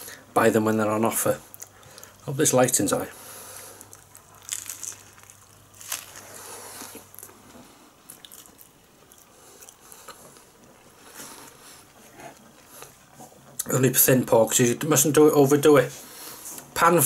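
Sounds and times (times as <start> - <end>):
quiet chewing: 1.5 - 2.2, 3.4 - 13.7
person biting into a wrap: 3.8 - 7.4.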